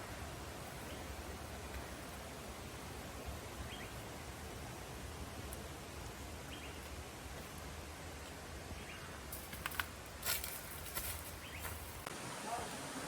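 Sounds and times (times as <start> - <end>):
low background noise: 0.0 - 13.0
crackles and rustles: 9.2 - 12.1.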